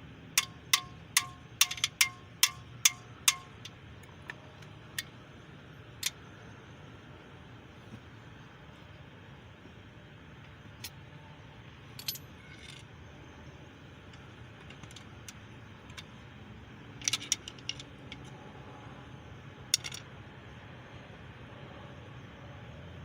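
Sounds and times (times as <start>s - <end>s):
metal tools clinking: 0.4s - 3.7s, 11.9s - 12.9s, 17.0s - 18.3s.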